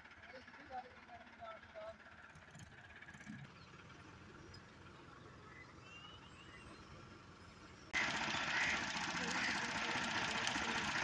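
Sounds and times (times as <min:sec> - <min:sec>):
loud engine running: 0:07.0 - 0:11.0.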